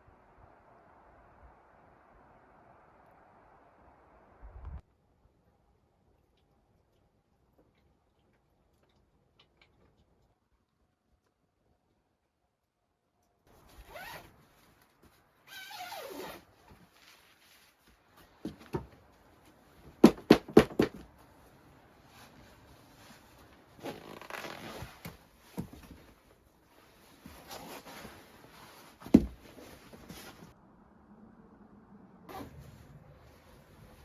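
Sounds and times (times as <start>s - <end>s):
rustling and handling noises: 13.5s - 30.6s.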